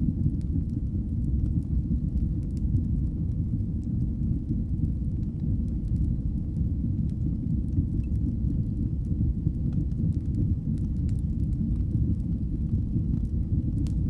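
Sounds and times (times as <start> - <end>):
fire crackles: 0.0 - 14.0
wood fire rumbling: 0.0 - 14.0.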